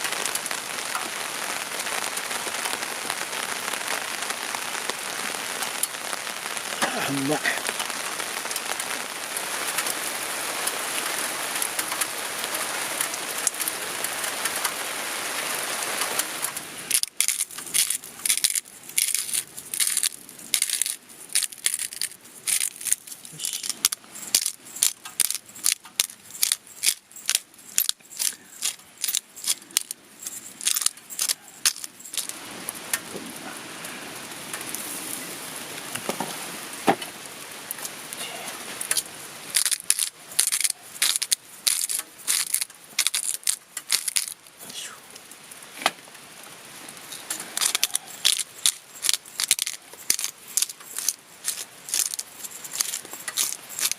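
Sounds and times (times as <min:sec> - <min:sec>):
steady rain: 0:00.0 - 0:53.9
sharp crunching clicks: 0:16.4 - 0:33.0, 0:38.8 - 0:44.5, 0:47.1 - 0:53.9.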